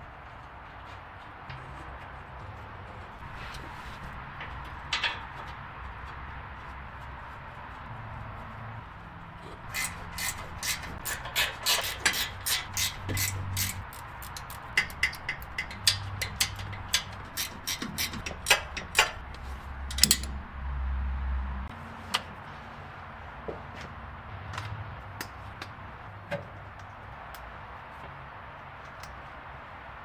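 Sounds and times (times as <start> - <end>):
hand tool clicks and taps: 12.1 - 20.4.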